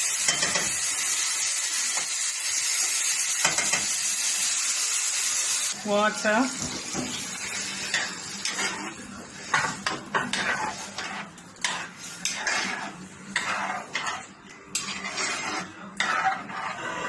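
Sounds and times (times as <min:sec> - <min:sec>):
spoon scraping cooking pot: 0:07.9 - 0:17.0.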